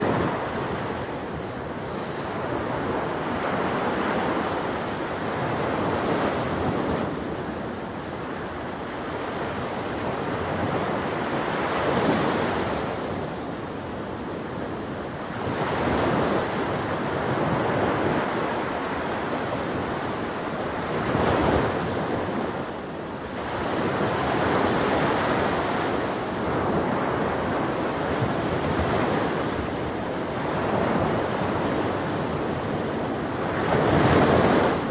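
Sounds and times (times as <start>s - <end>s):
ocean surf breaking: 23.4s - 34.9s.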